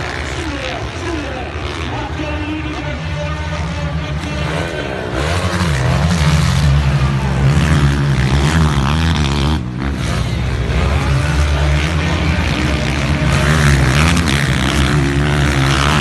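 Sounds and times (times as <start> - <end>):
motocross bikes racing: 0.0 - 16.0.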